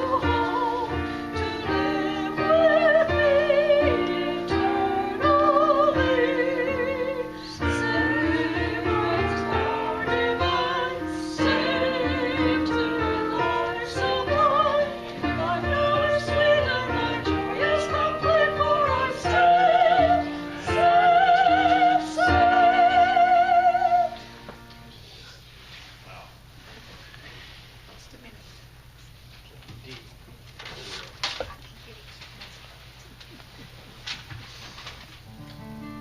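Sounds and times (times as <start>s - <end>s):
woman singing with vibrato: 0.0s - 24.2s
sustained accompaniment: 0.0s - 24.9s.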